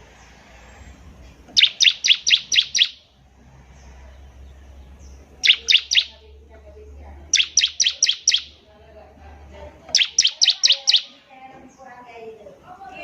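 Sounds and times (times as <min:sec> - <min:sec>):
bird singing sharp high notes: 0:01.6 - 0:03.1, 0:05.4 - 0:06.2, 0:07.3 - 0:08.6, 0:09.9 - 0:11.2.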